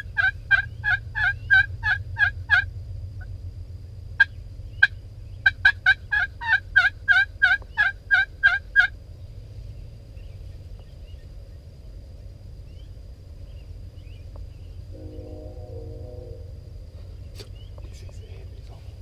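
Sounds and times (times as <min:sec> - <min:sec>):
turkey yelps: 0:00.0 - 0:02.7, 0:04.2 - 0:08.9.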